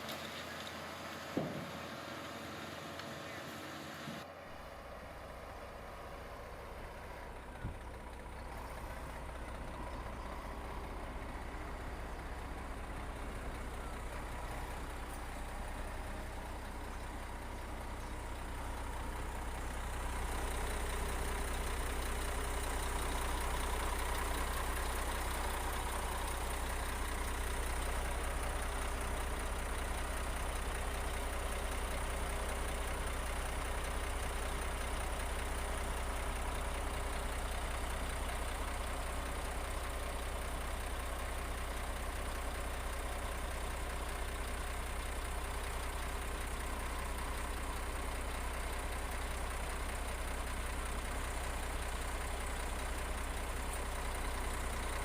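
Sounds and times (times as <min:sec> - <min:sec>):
construction machine engine humming: 0:00.0 - 0:55.0
short knock: 0:01.3 - 0:01.8.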